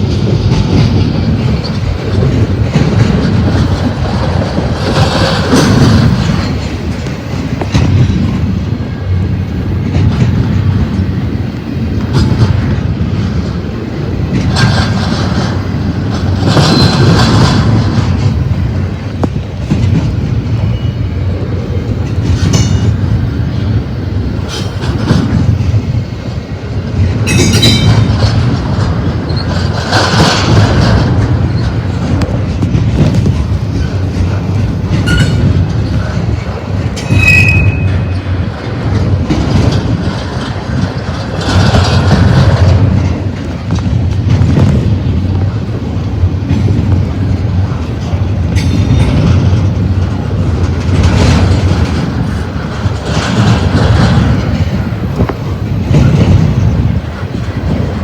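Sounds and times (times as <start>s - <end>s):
freight train rumbling past: 0.0s - 58.0s
wheels clattering over rail joints: 0.0s - 58.0s
high wheel squeals: 16.6s - 17.2s, 20.6s - 21.3s, 37.0s - 38.4s.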